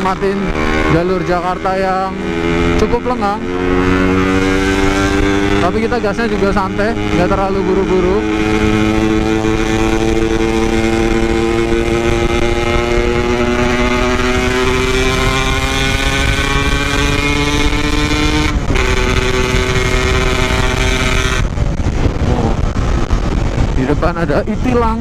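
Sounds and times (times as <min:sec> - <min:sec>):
two-stroke motorcycle engine: 0:00.0 - 0:23.6.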